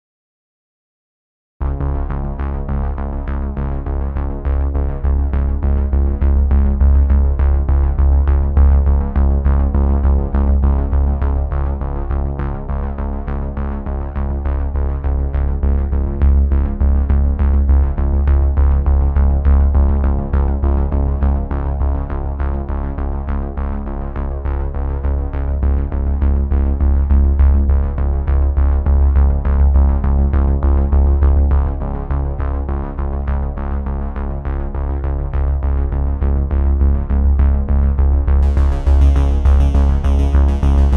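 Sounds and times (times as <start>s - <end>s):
electronic music with heavy bass: 36.1s - 40.9s.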